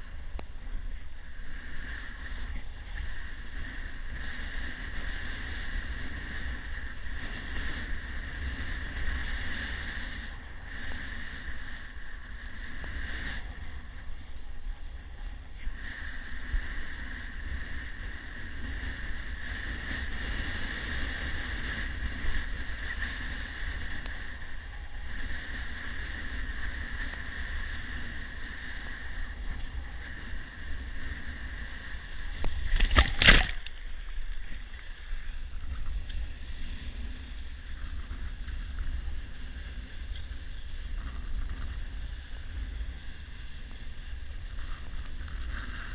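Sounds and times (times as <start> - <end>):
water rushing: 32.4 - 35.9.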